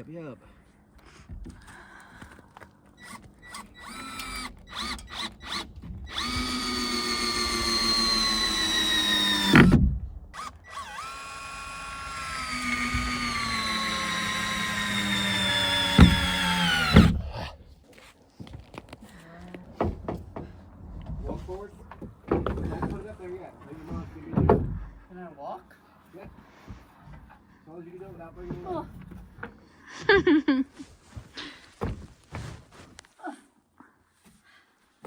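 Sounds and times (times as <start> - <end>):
power drill driving screws: 3.0 - 9.8, 10.4 - 17.5.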